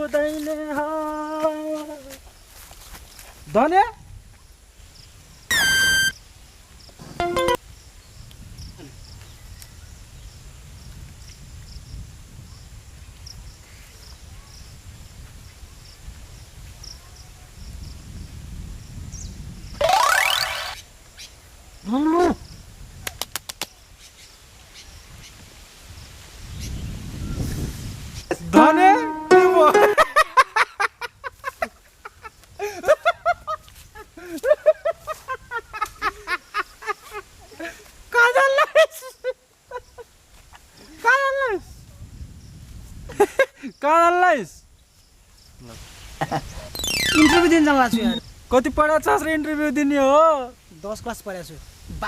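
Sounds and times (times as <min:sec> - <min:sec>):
crickets chirping: 0:04.2 - 0:22.9, 0:30.4 - 0:52.0
short arching bird calls: 0:46.7 - 0:48.2.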